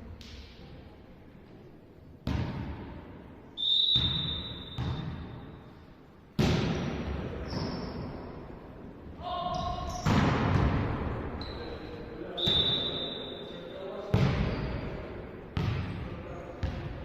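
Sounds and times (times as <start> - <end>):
volleyball smacks in hall: 6.4 - 7.5, 9.6 - 11.2, 14.1 - 17.0.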